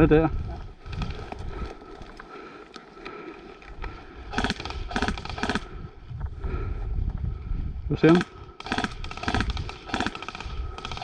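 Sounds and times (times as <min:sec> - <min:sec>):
airsoft rifle bursts of clicks: 0:04.3 - 0:05.7, 0:08.0 - 0:11.0.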